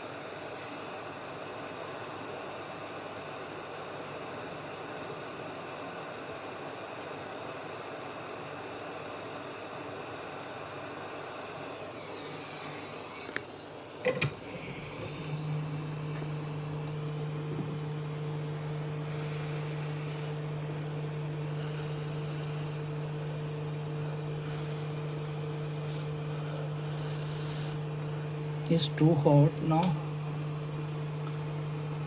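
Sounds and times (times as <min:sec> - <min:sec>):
hot-air gun blowing: 0:14.0 - 0:30.6.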